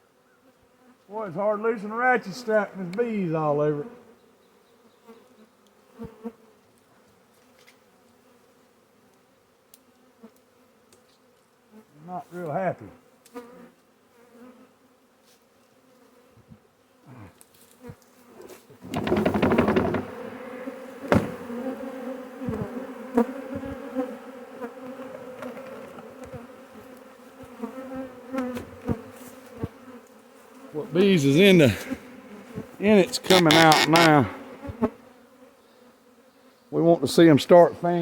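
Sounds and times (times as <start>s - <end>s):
bee swarm buzzing: 18.5s - 37.2s
knocks on hive boxes: 18.8s - 21.7s.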